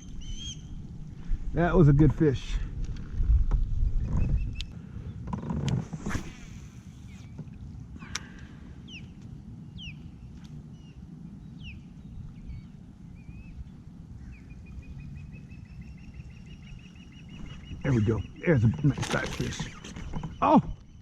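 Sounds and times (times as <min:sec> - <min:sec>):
birds chirping: 0:00.0 - 0:02.0, 0:06.2 - 0:21.0
wind rumble: 0:00.0 - 0:21.0
water around kayak: 0:02.8 - 0:10.9, 0:11.6 - 0:21.0.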